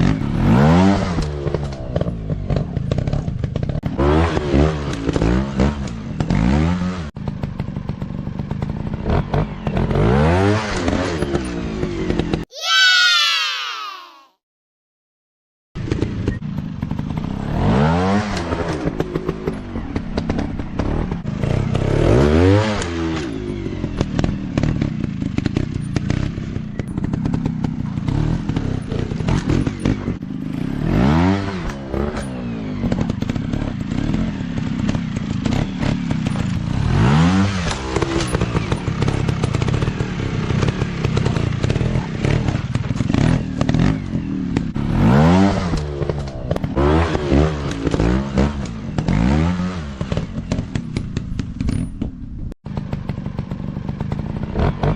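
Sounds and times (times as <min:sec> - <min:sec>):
dirt bike engines revving: 0:15.9 - 0:51.4.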